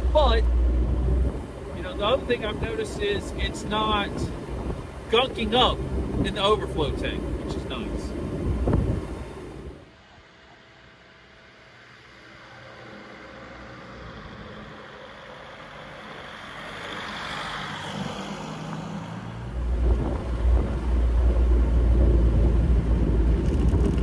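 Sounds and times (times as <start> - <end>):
diesel engine driving: 0.0 - 9.9, 12.0 - 24.0
heavy low rumble: 0.0 - 9.9, 19.4 - 24.0.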